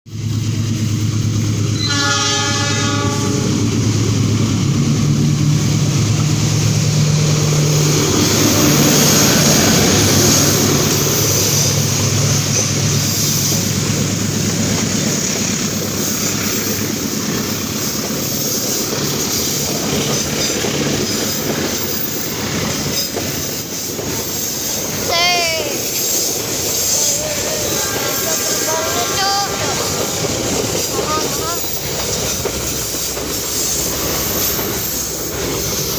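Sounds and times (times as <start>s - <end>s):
train wheels rumbling on rails: 0.1s - 35.9s
train horn: 1.8s - 3.7s, 25.1s - 31.8s.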